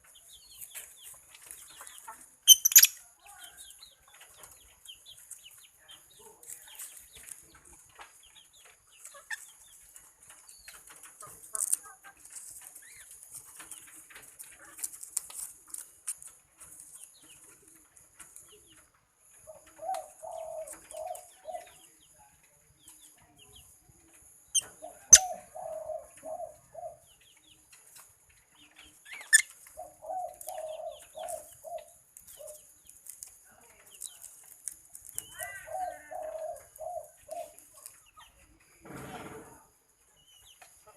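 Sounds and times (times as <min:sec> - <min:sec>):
faint high bird chittering: 0:02.5 - 0:03.0
dove cooing: 0:19.4 - 0:21.8, 0:24.6 - 0:27.1, 0:29.8 - 0:32.6, 0:35.3 - 0:37.9.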